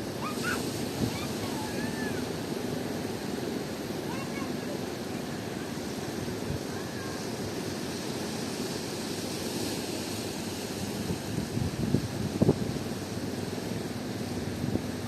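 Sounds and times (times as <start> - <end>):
strong wind on microphone: 0.0 - 3.0, 10.9 - 13.3
surf: 0.0 - 15.0.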